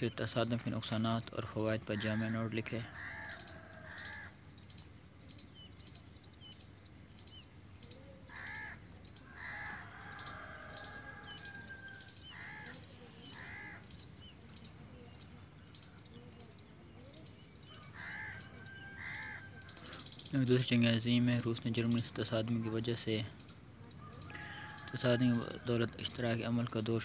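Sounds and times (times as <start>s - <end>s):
bird calls: 0.0s - 27.0s
faint bird chirping: 0.0s - 27.0s.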